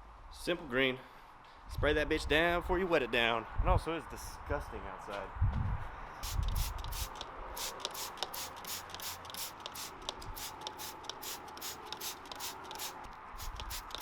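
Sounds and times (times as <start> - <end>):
spray bottle squirting: 6.2 - 14.0.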